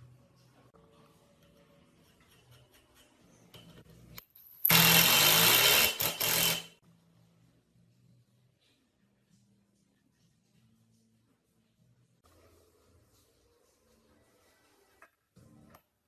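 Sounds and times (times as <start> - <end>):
small power tool running: 4.7 - 6.7.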